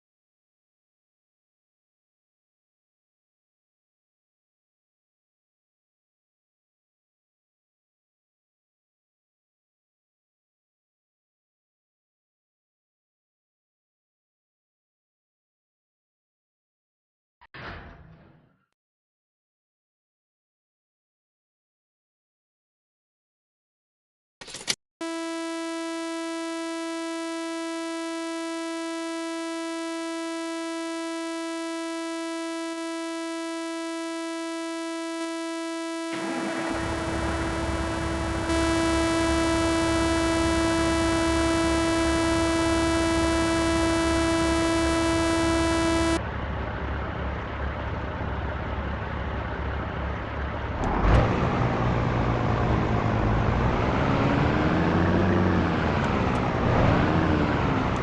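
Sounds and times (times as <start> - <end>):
steady electronic tone: 25.0 - 46.2
truck engine and road noise: 36.2 - 42.4, 44.7 - 58.0.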